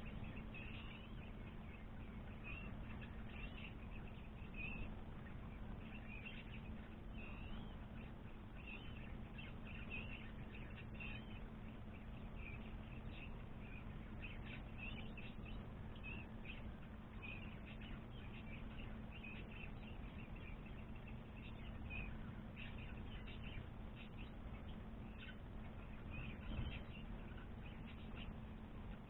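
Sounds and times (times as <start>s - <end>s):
small birds chirping: 0.0s - 29.0s
steady low hum: 0.0s - 29.0s.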